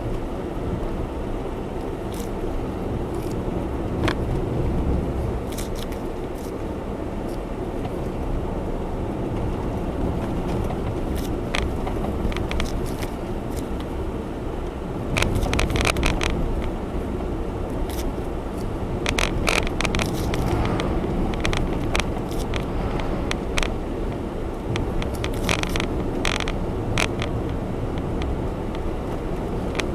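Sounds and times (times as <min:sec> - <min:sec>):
car cabin road and engine noise: 0:00.0 - 0:29.9
small clicks and rattles: 0:01.8 - 0:04.4, 0:05.4 - 0:06.6, 0:09.3 - 0:13.9, 0:15.1 - 0:16.8, 0:17.7 - 0:23.7, 0:24.7 - 0:29.9.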